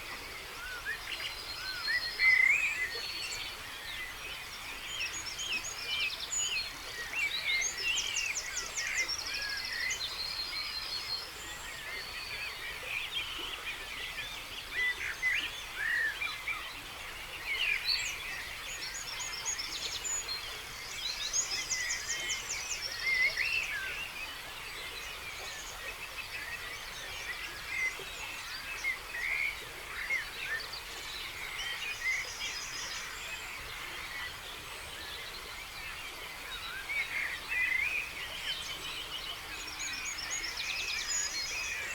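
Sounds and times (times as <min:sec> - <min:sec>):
songbirds singing: 0:00.0 - 0:41.9.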